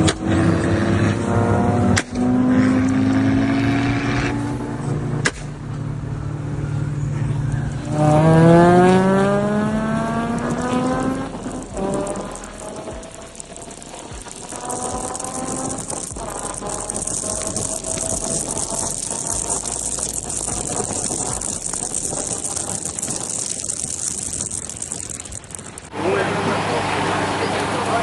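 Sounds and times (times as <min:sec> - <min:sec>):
car engine: 0:00.0 - 0:28.0
rain and wet road hiss: 0:07.8 - 0:28.0.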